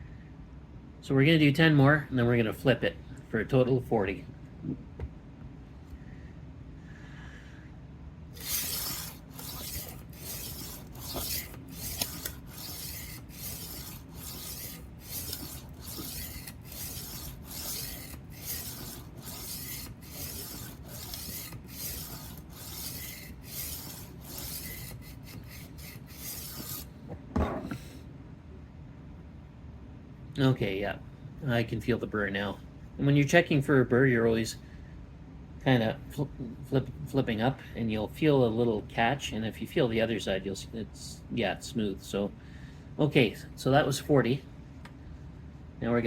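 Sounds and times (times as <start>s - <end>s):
knife sharpener rasping on blade: 8.4s - 26.9s.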